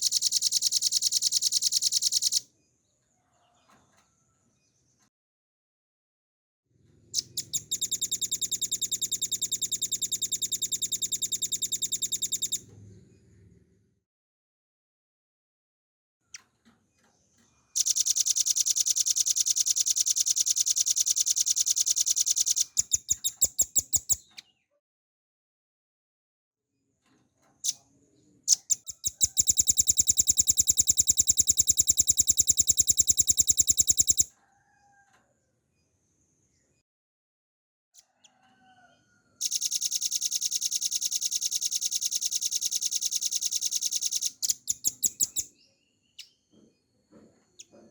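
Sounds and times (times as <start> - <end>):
bird singing high trill: 0.0 - 2.4, 7.2 - 12.6, 17.8 - 24.2, 28.5 - 34.3, 39.4 - 45.6.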